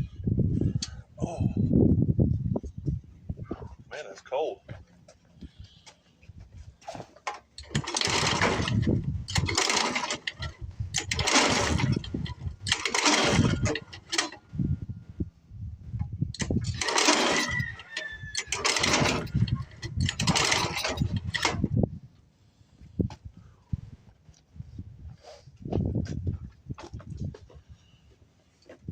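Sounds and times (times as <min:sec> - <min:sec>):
engine cranking without starting: 0:07.4 - 0:14.5, 0:16.3 - 0:21.8.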